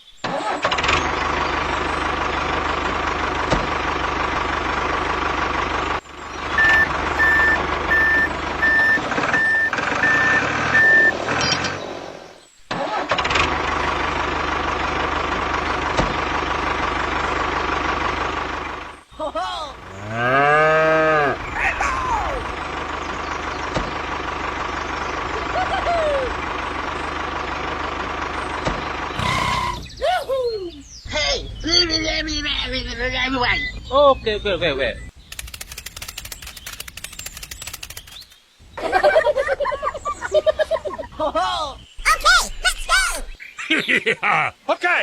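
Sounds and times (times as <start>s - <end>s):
vehicle engine running: 0.6s - 12.3s, 13.1s - 30.0s, 30.8s - 41.1s
repeated beeping alarm: 6.6s - 11.5s
person calling out: 19.2s - 19.8s, 21.1s - 22.5s, 41.3s - 43.4s.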